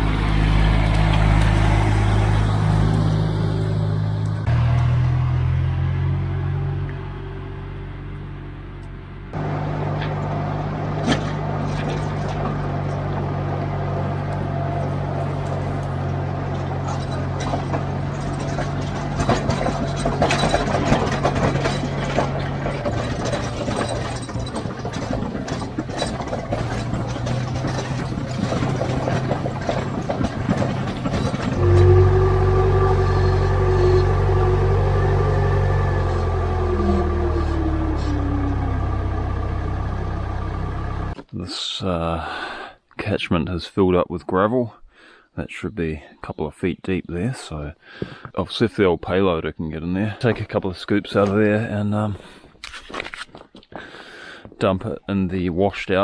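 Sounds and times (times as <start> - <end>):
heavy machine engine running: 0.0 - 41.2
knocks and clanks: 9.4 - 41.3.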